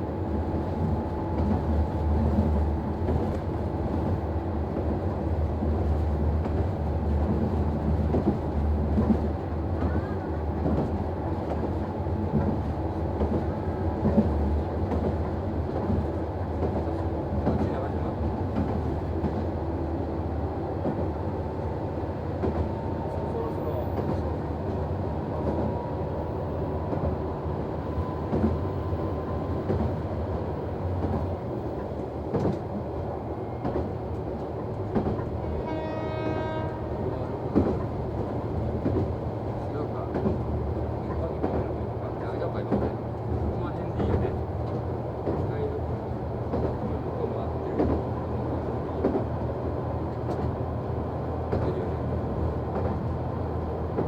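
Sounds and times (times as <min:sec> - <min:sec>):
railcar engine and wheel rumble: 0:00.0 - 0:54.0
train horn: 0:35.4 - 0:37.7.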